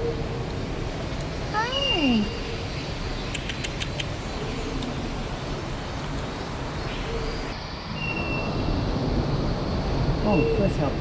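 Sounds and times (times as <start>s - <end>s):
steady background hiss: 0.0s - 11.0s
faint bird calls: 1.6s - 5.3s
quick run of clicks: 3.4s - 4.1s.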